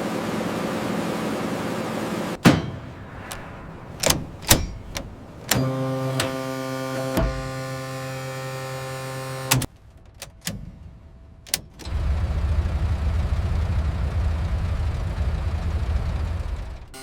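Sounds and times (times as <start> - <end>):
aircraft engine rumbling: 2.4 - 6.4
steady hum: 2.4 - 8.5
sharp clicks: 3.1 - 6.4.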